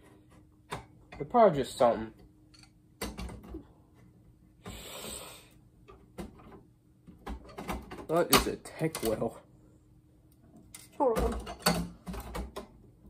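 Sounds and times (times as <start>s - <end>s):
clicks and knocks of parts handled: 5.8s - 9.3s, 10.3s - 12.8s.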